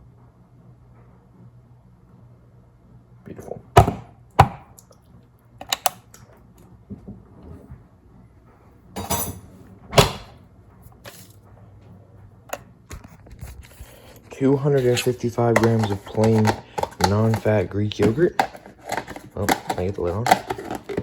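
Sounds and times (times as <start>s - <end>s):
containers knocking and clicking: 5.6s - 6.2s, 14.6s - 21.0s.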